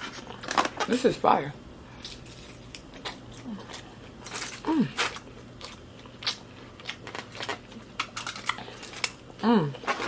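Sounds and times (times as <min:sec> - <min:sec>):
crunchy chewing: 0:01.9 - 0:10.0
person humming: 0:04.6 - 0:05.0, 0:09.4 - 0:09.9.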